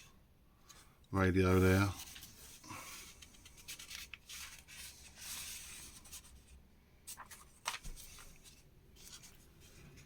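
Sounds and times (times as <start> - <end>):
paper pages rustling: 1.6 - 10.0
paper crinkling: 1.8 - 10.0.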